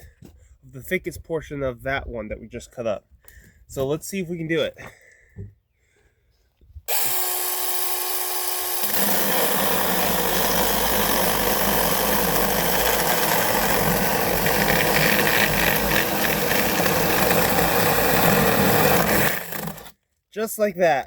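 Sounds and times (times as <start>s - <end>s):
chainsaw cutting through log: 6.9s - 20.0s.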